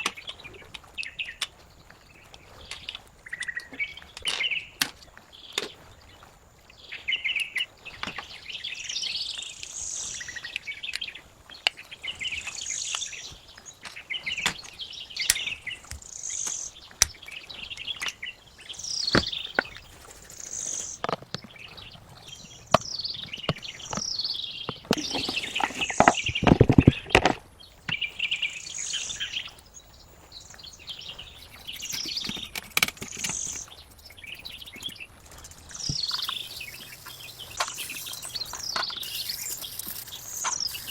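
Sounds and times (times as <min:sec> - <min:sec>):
small birds chirping: 0:00.0 - 0:40.9
sharp clicks and taps: 0:31.1 - 0:40.9.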